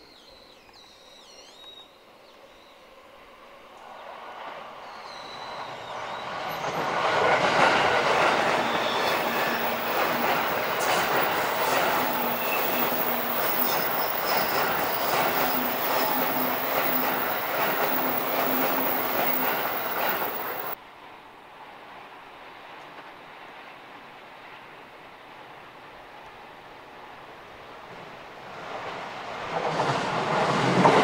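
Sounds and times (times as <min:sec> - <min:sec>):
train wheels on rails: 0:04.0 - 0:20.8, 0:27.9 - 0:31.0
wheel squealing: 0:08.5 - 0:20.8.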